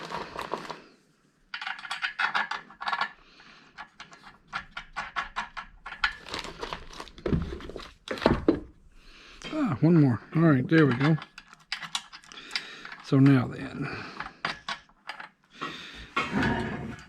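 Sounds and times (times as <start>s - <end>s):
metal nuts clicking and rattling: 1.5s - 6.4s, 9.8s - 15.4s.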